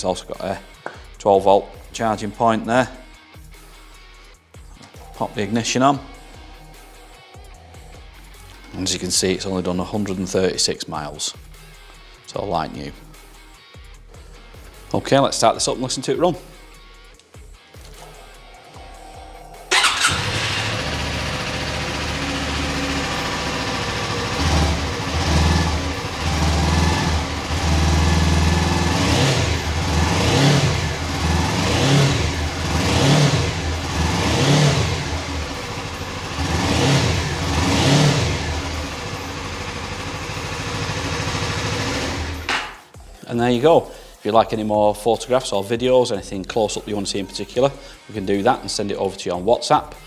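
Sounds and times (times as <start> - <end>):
motorcycle engine idling: 19.7 - 42.5
motorcycle engine revving: 19.7 - 42.8.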